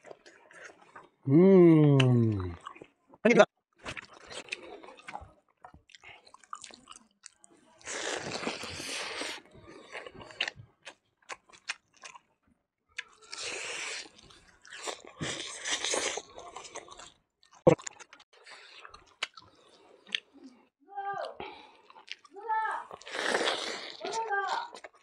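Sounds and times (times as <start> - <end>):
mouth clicks: 1.3 - 2.6
person chewing and crunching: 1.8 - 2.9, 3.8 - 12.3, 13.0 - 20.4, 21.6 - 25.0.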